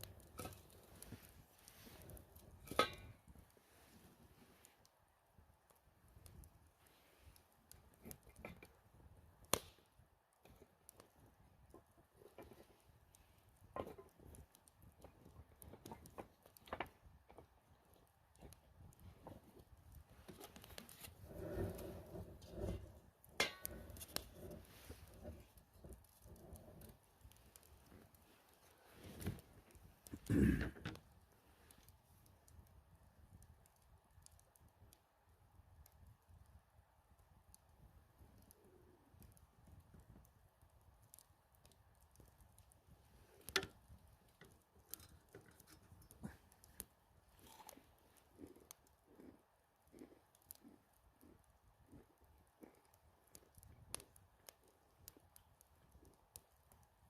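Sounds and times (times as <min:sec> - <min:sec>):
sharp pops from fire: 0:00.0 - 0:03.6, 0:07.3 - 0:35.0
campfire wood crackling: 0:00.0 - 0:57.0.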